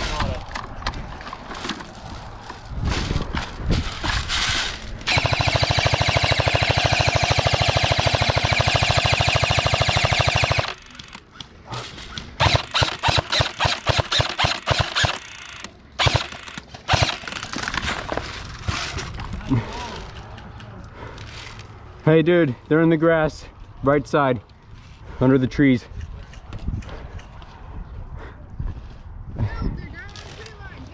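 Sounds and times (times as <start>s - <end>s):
airsoft gun firing rapid burst: 5.1s - 11.2s, 12.4s - 17.6s
separate irregular gunshots: 5.1s - 11.2s, 12.4s - 17.6s.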